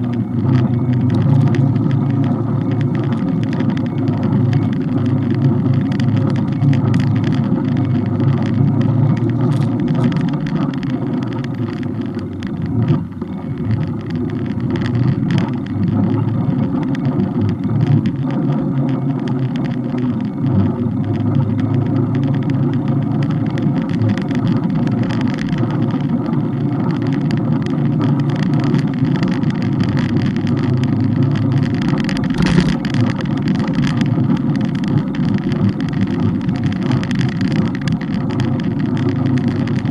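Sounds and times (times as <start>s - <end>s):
bike riding road rumble: 0.0s - 39.9s
camera mount rattling: 9.2s - 12.6s.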